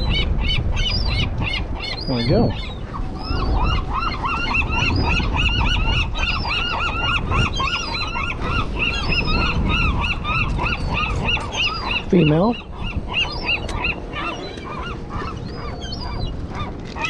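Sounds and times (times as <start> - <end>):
flock of birds calling: 0.0 - 17.0
wind rumbling on microphone: 0.0 - 17.0.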